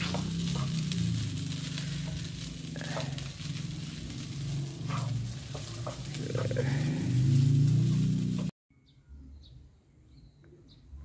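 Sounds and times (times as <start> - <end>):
fried rice sizzling in a pan: 0.0 - 8.5
low hum: 0.0 - 8.5.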